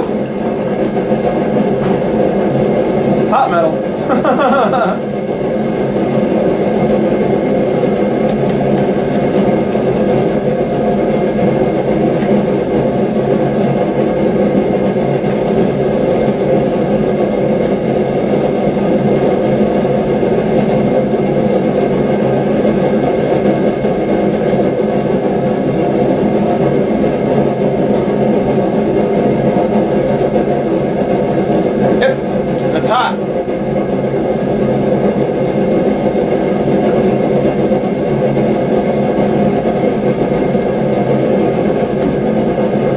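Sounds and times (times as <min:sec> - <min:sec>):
forge roaring with steady hum: 0:00.0 - 0:42.9.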